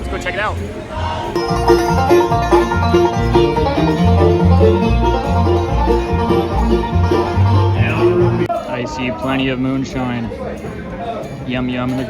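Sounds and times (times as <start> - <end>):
live string band playing: 0.0 - 8.6
walking bass line: 1.3 - 8.6.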